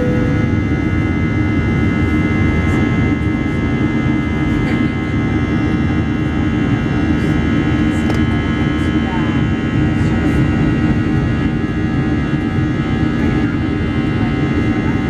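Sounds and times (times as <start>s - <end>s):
whining engine tones: 0.0s - 6.6s
jet engines rushing: 0.0s - 14.0s.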